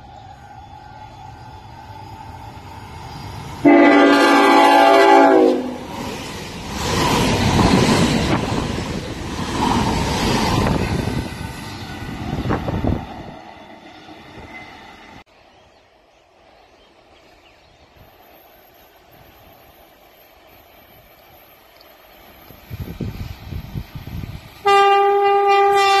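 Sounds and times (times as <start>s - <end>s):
train rushing past: 0.0s - 15.5s, 16.3s - 26.0s
train horn chord: 3.6s - 5.8s, 24.6s - 26.0s.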